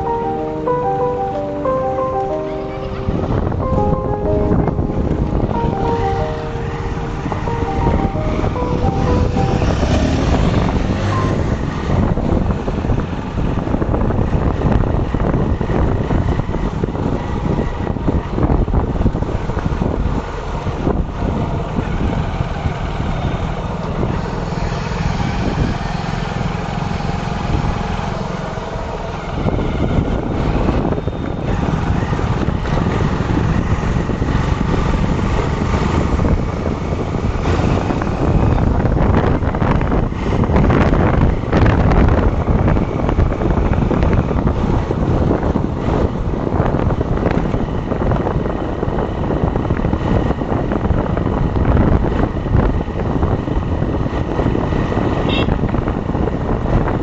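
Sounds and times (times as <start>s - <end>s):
traffic rumble: 0.0s - 57.0s
wind buffeting microphone: 9.6s - 26.2s, 29.1s - 57.0s.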